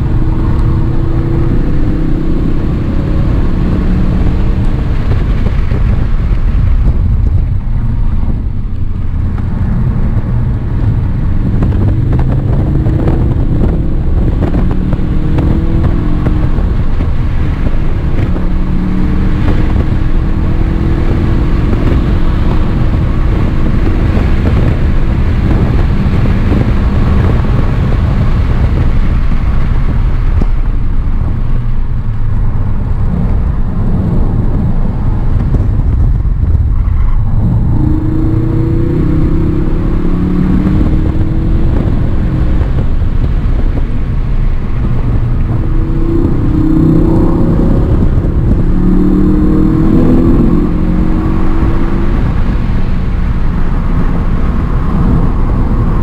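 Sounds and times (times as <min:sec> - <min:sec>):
car engine accelerating: 0:00.0 - 0:56.0
low road noise: 0:00.0 - 0:56.0.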